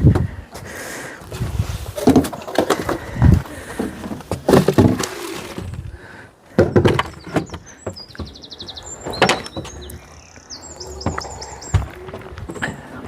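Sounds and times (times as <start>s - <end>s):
sharp wooden knocks and clatter: 2.0s - 5.8s, 6.5s - 10.1s
small bird trilling chirps: 7.2s - 12.3s.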